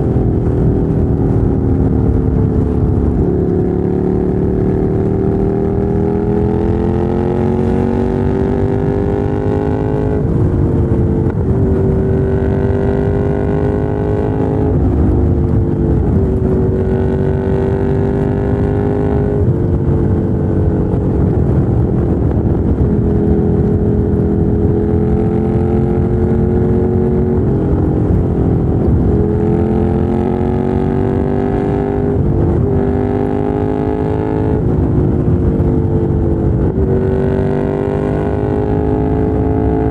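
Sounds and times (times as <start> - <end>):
motorcycle engine revving through gears: 0.0 - 39.9
wind and road noise: 0.0 - 39.9.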